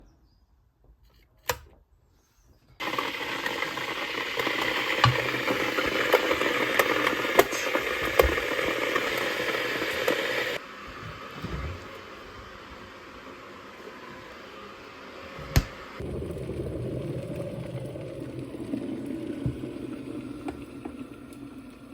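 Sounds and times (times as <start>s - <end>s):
kettle water boiling: 2.8s - 21.9s
kettle switch click: 15.5s - 15.8s.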